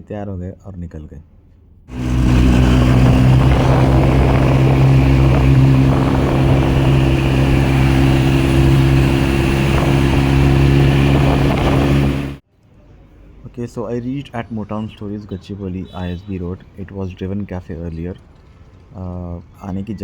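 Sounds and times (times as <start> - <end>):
motorcycle engine running loud: 1.9 - 12.4
wind rushing noise: 1.9 - 12.4.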